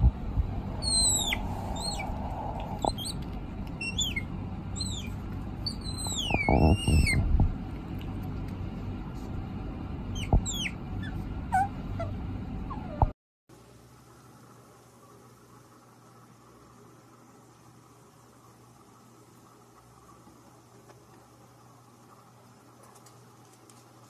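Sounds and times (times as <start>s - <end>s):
steady background hiss: 0.0s - 11.4s, 13.5s - 24.0s
wavering bird call: 0.8s - 3.2s, 3.8s - 7.2s, 10.2s - 12.1s
high thin bird peeps: 0.8s - 7.3s, 10.2s - 12.1s.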